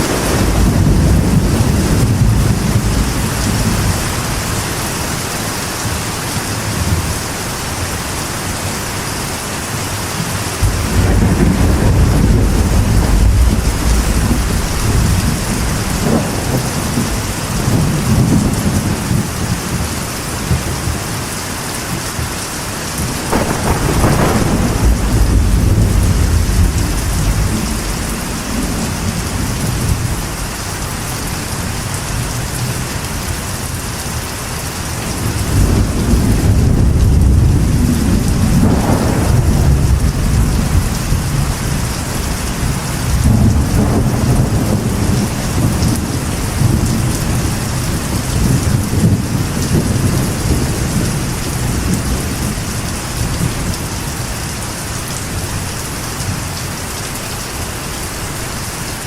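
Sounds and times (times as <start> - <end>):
thunder rumbling: 0.0 - 5.3, 10.5 - 21.1, 22.2 - 34.0, 35.0 - 54.3
rain on a metal roof: 0.0 - 59.0.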